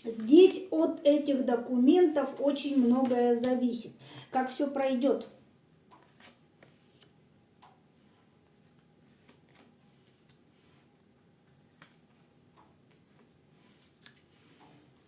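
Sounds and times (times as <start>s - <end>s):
cards ticking and rustling: 5.7s - 15.0s.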